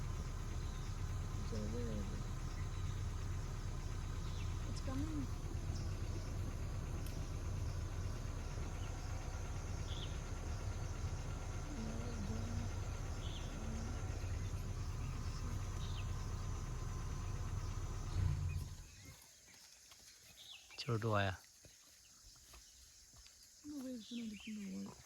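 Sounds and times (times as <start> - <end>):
vehicle engine idling: 0.0 - 19.1
faint insect drone: 0.0 - 25.0.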